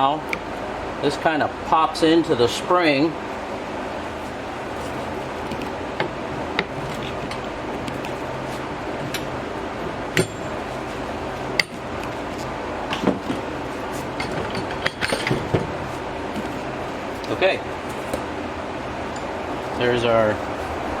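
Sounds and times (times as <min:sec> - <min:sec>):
steady background hum: 0:00.0 - 0:21.0
sharp metal clanks: 0:10.2 - 0:10.6
metal parts clinking and knocking: 0:14.2 - 0:15.7.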